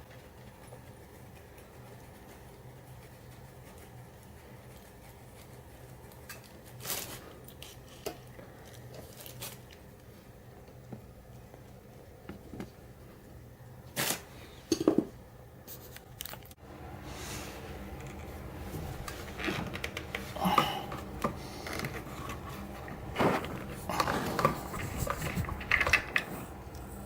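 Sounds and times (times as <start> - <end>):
objects being handled: 17.5 - 27.0.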